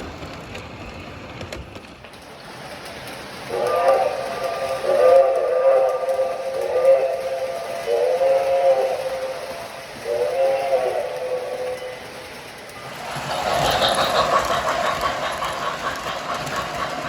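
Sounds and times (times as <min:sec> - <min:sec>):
model train whistle blasts: 0:03.5 - 0:12.4.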